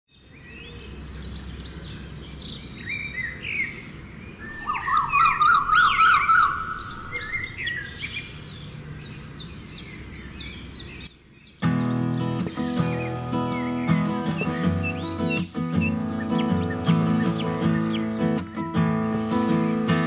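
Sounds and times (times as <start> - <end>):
small birds chirping: 0.1 - 20.0
rapid warbling bird trill: 4.3 - 8.6, 11.6 - 20.0.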